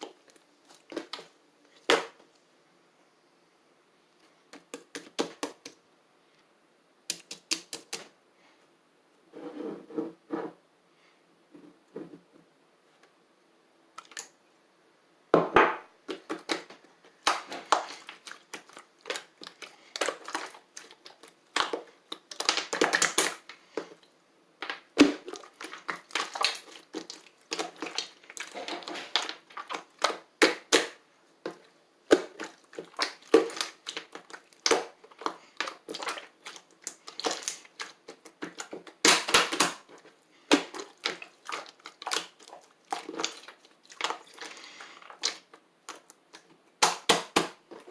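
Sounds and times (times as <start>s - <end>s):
slime clicking and popping: 32.1s - 39.9s, 45.1s - 47.6s.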